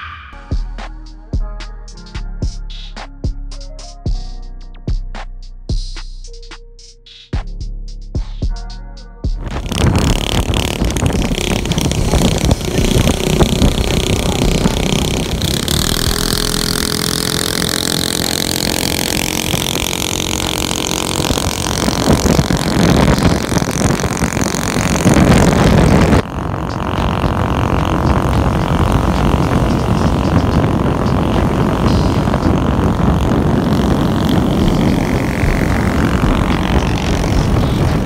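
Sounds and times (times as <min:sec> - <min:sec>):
road noise: 0:09.4 - 0:38.0
vehicle engine accelerating hard: 0:09.4 - 0:38.0.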